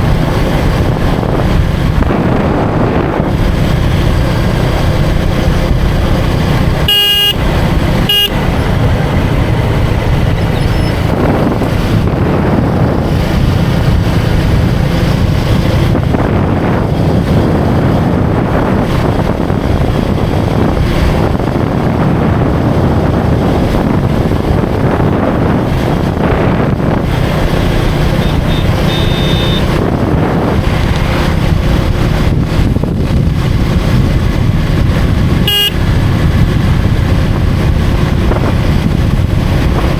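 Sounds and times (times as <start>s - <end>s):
motorcycle engine running: 0.0s - 39.9s
street traffic: 0.0s - 39.9s
vehicle horn tooting: 6.8s - 8.6s, 28.2s - 29.8s, 35.4s - 35.9s.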